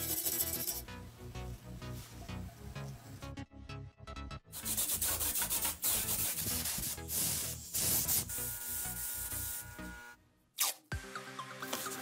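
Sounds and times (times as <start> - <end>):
rough rubbing strokes: 0.0 - 0.8
background music: 0.0 - 12.0.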